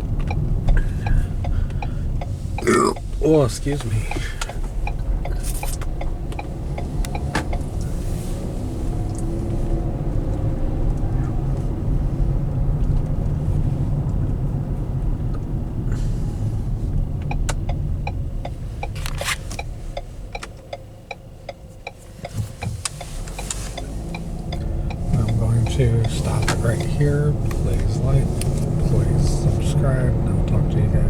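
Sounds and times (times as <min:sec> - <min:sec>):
road and engine rumble in car: 0:00.0 - 0:31.0
light regular ticking: 0:00.1 - 0:08.1, 0:16.9 - 0:29.7.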